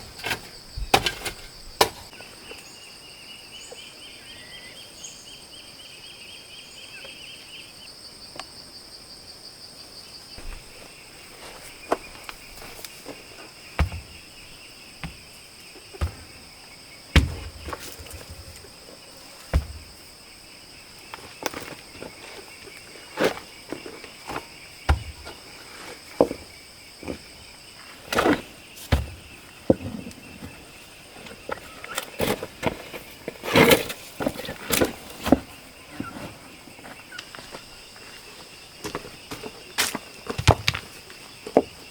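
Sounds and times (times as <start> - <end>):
knocks and thumps: 0.0 - 2.1, 10.4 - 18.7, 19.4 - 20.1, 24.3 - 25.5, 28.1 - 30.6
insects buzzing: 0.0 - 41.9.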